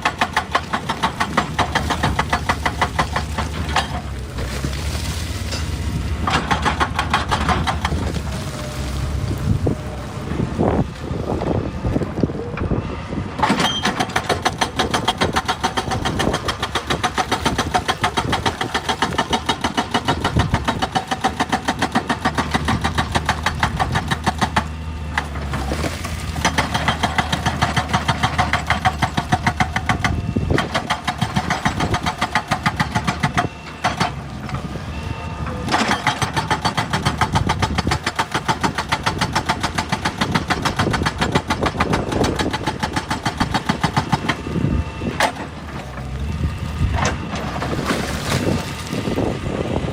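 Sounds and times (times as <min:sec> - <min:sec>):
hydraulic breaker hammering rock: 0:00.0 - 0:04.2, 0:05.5 - 0:08.2, 0:13.4 - 0:25.7, 0:26.3 - 0:34.2, 0:35.7 - 0:45.6
diesel engine: 0:00.0 - 0:49.9.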